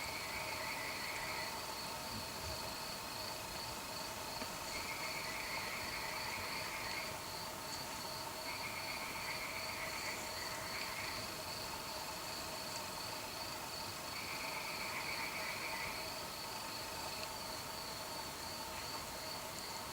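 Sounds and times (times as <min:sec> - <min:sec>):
frogs trilling: 0:00.0 - 0:01.6, 0:04.6 - 0:07.5, 0:08.4 - 0:11.4, 0:14.1 - 0:16.8
crickets trilling: 0:00.0 - 0:19.9.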